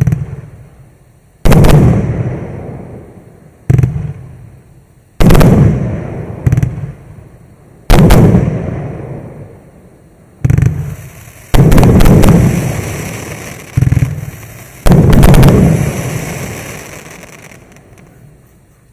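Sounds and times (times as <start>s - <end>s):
fireworks bangs echoing: 1.4s - 3.0s, 5.2s - 7.0s, 7.9s - 9.5s, 10.4s - 18.4s.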